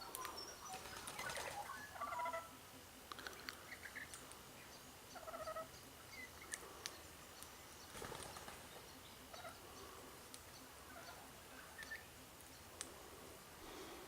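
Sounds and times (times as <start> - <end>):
birds chirping and chattering: 0.0 - 14.0
sharp clicks: 3.1 - 4.4.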